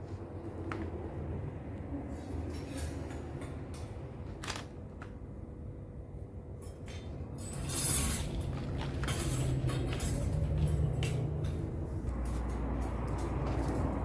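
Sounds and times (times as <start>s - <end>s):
objects clicking and knocking: 6.7s - 14.0s.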